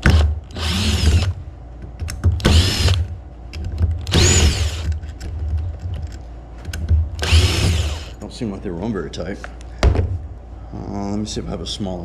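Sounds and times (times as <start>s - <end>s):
power drill motor whining: 0.5s - 1.4s, 2.4s - 3.0s, 4.0s - 4.9s, 7.2s - 8.2s.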